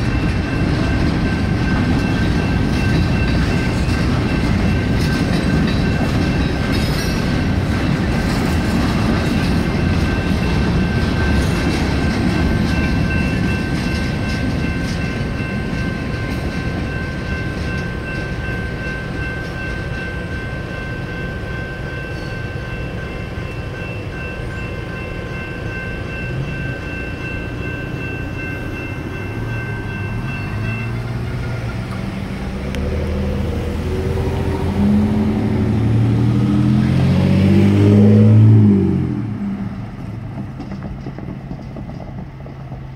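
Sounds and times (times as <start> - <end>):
electronic crossing bells ringing: 0.0 - 8.2, 8.9 - 37.0
car engines pulling away: 31.9 - 39.7.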